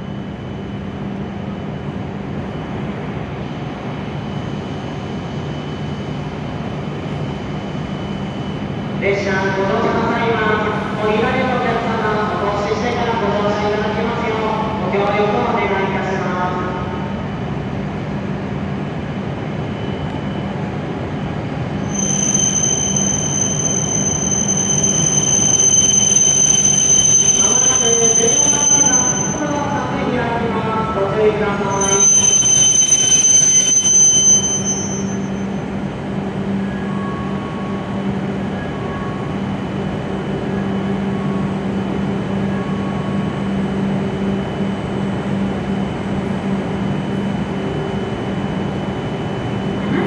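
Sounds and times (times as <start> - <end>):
high steady whine: 21.8 - 41.4
train rumble and hum: 34.4 - 50.0.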